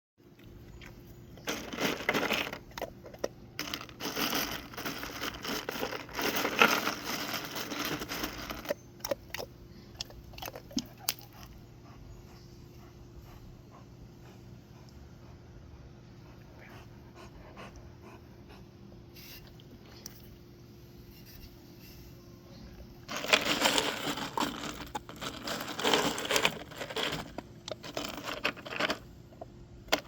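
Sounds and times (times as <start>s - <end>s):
faint steady hum: 0.2s - 30.0s
dog tearing crinkly packaging: 3.6s - 8.8s, 23.1s - 29.0s.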